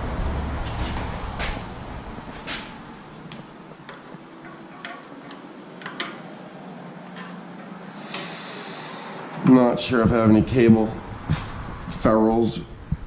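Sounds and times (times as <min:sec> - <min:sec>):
low rumble: 0:00.0 - 0:03.6, 0:09.9 - 0:13.0
hand tools clicking and tapping: 0:03.3 - 0:06.3, 0:07.0 - 0:08.3.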